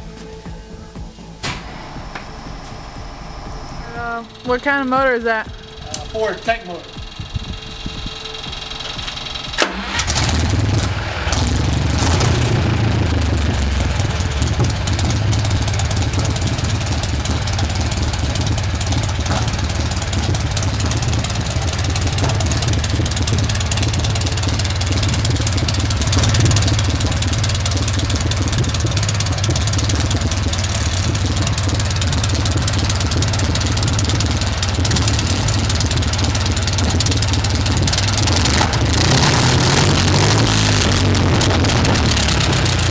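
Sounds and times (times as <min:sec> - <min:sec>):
old engine rumbling: 0:00.0 - 0:42.9.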